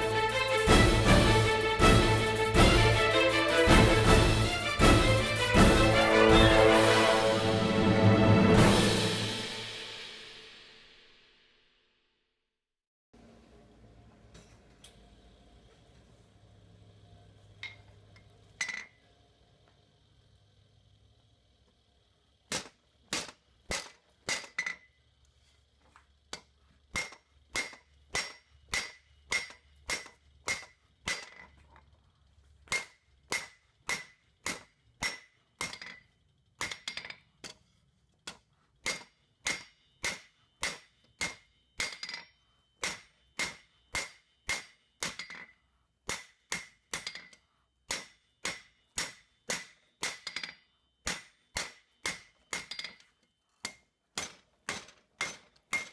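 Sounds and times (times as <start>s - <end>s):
hammer striking steel on anvil: 0.0s - 7.6s, 22.5s - 24.9s, 26.3s - 31.5s, 32.6s - 36.0s, 36.6s - 37.6s, 38.3s - 55.9s.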